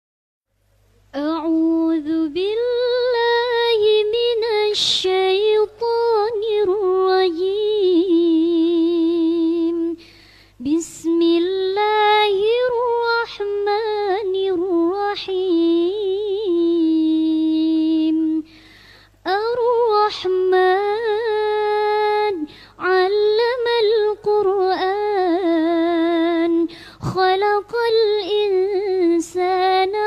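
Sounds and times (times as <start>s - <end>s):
audible breaths: 10.0s - 10.6s, 18.5s - 19.2s.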